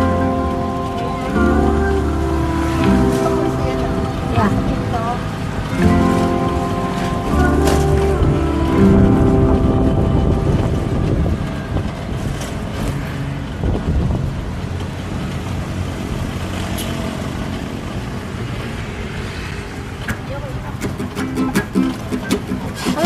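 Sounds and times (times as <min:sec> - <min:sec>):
music playing: 0:00.0 - 0:13.2, 0:20.8 - 0:23.0
wind on microphone: 0:00.0 - 0:15.3
passing vehicles rumbling: 0:00.0 - 0:23.0.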